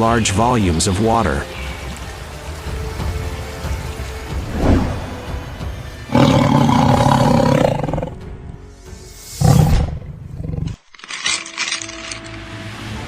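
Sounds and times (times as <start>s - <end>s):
background music: 0.0s - 13.0s
tiger roaring: 6.1s - 8.2s.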